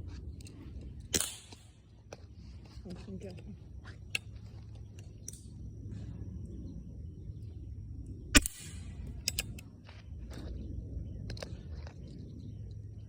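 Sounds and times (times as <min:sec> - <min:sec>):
low background rumble: 0:00.0 - 0:13.0
rifle shot with echo: 0:01.1 - 0:01.7, 0:08.3 - 0:09.0.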